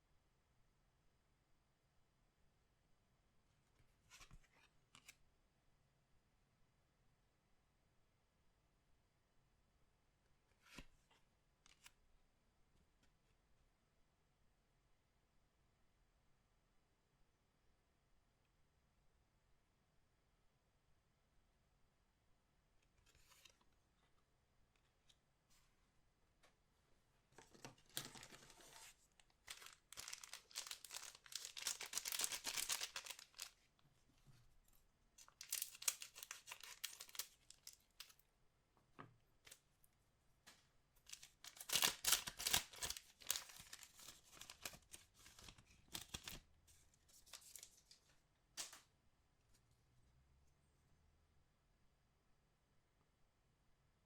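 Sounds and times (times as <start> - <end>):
card wrappers tearing and crinkling: 27.7 - 33.6, 35.2 - 38.1, 41.1 - 46.4, 47.2 - 48.0.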